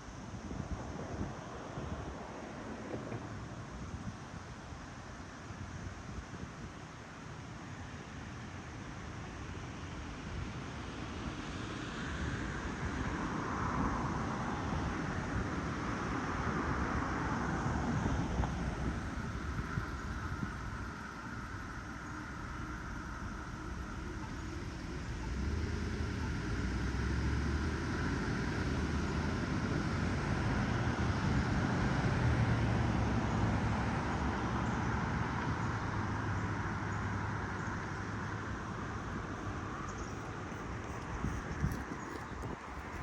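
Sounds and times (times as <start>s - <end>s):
outdoor low rumble with hiss: 0.0s - 43.0s.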